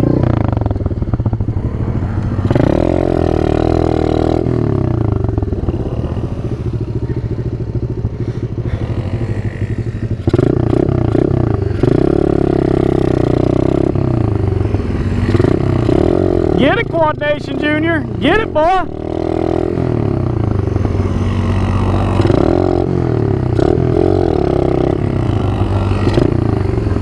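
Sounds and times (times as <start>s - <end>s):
small engine revving: 0.0s - 27.0s.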